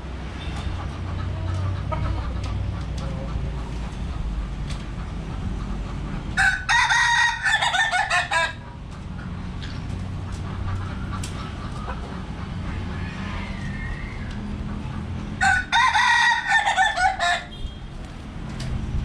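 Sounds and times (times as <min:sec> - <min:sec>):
rooster crowing: 0:06.4 - 0:08.6, 0:15.4 - 0:17.6.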